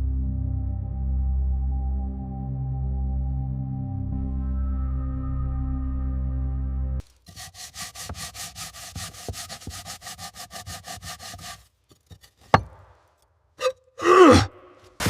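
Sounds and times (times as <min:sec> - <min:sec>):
abrasive back-and-forth strokes: 0:07.3 - 0:12.8.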